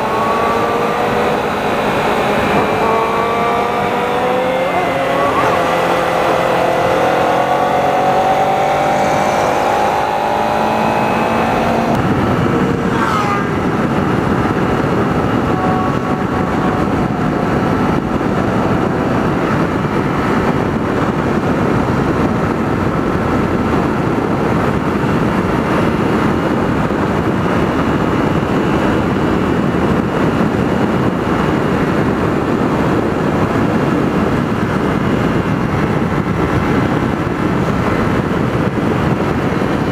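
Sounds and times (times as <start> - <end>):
falling tone: 0.0 - 17.7
motorcycle engine: 0.0 - 39.9
wind rushing over microphone: 0.0 - 39.9.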